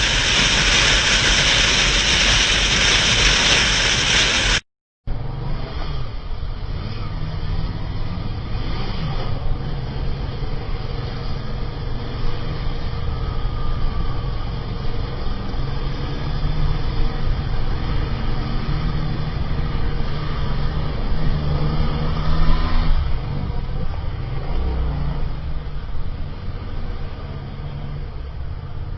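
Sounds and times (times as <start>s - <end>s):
motorcycle engine running: 0.0s - 4.6s
road and wind noise: 0.0s - 28.9s.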